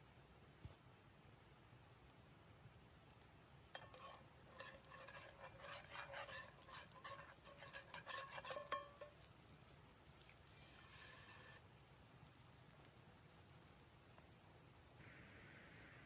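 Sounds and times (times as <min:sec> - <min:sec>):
light clinks and scrapes: 0:03.7 - 0:11.6.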